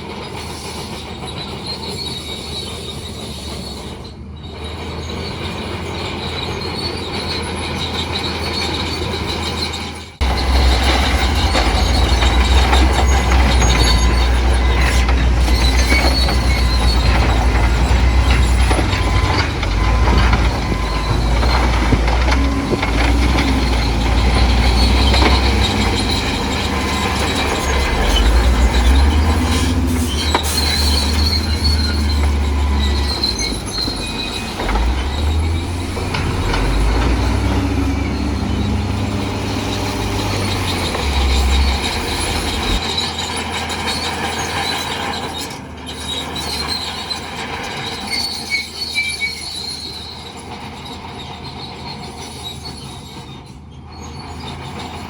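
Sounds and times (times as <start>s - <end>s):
bulldozer diesel engine under load: 0.0s - 55.0s
steel tracks squealing and clanking: 0.0s - 55.0s.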